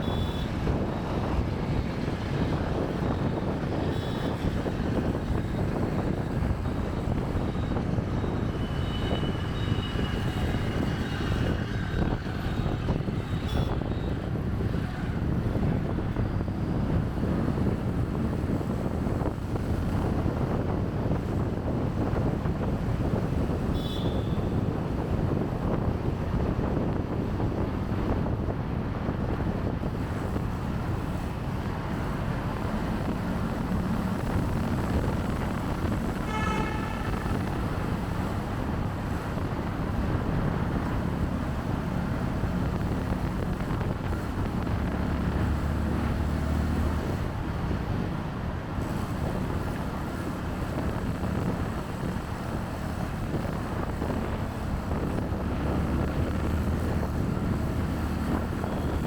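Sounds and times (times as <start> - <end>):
vehicle horn honk: 0.0 - 0.5, 23.7 - 24.6, 36.1 - 37.7
traffic noise: 0.0 - 59.0
wind buffeting microphone: 0.0 - 59.0.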